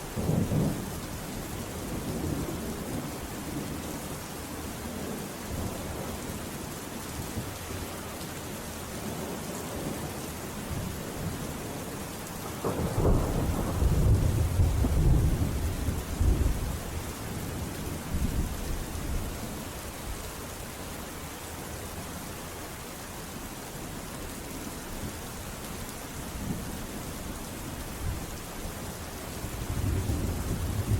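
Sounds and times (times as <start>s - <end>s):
steady rain: 0.0s - 30.9s
rolling thunder: 12.6s - 16.8s, 29.5s - 30.9s.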